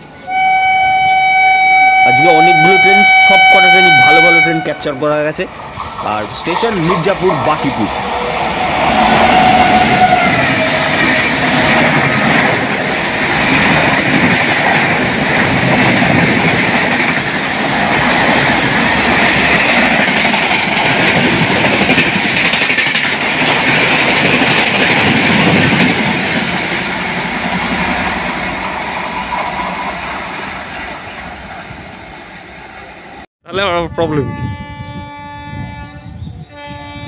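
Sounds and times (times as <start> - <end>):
train rushing past: 0.0 - 33.3.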